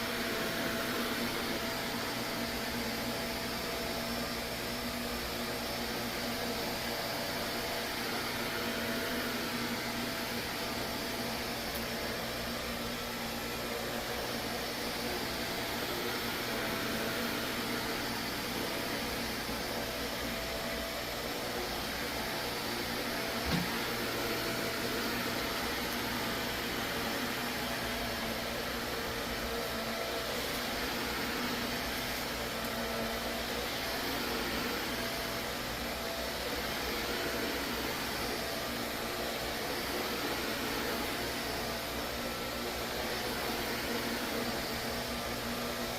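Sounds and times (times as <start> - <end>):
vacuum cleaner running: 0.0 - 45.9.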